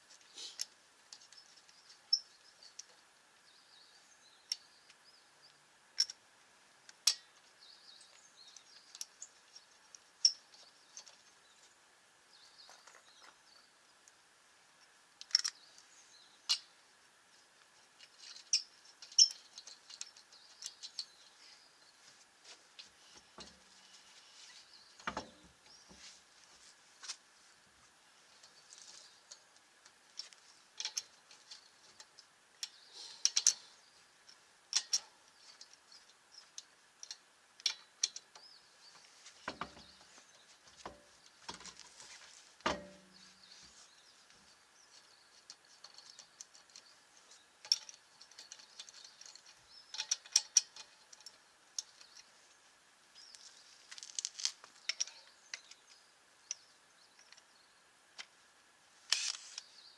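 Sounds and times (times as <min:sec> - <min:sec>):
tools and parts clinking: 0:12.5 - 0:13.4, 0:42.7 - 0:43.3
dull knocks: 0:39.5 - 0:40.0.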